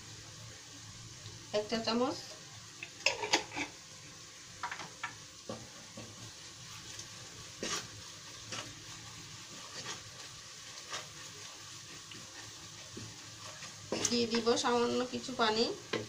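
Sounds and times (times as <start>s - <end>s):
onions sizzling in oil: 0.0s - 16.0s
wooden spoon scraping pan: 3.0s - 3.8s, 5.5s - 16.0s.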